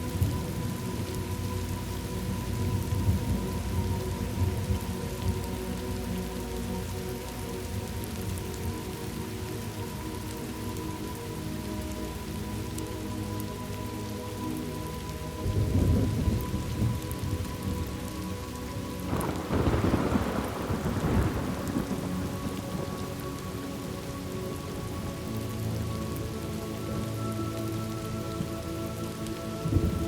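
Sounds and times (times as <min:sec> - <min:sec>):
steady rain: 0:00.0 - 0:30.0
thunder rolling: 0:19.1 - 0:22.9.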